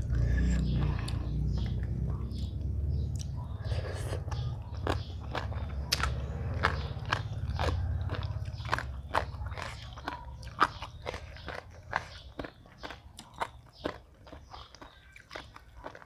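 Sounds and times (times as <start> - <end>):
low hum: 0.0 - 9.0
crunchy chewing: 0.0 - 16.0.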